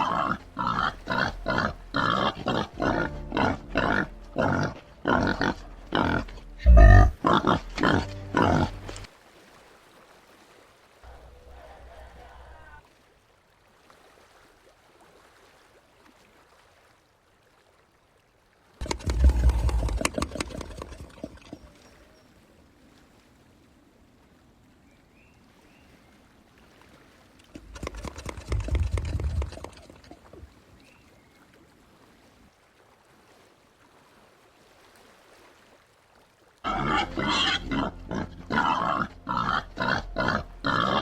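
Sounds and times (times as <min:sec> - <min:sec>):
peccaries clattering: 0:18.8 - 0:21.6.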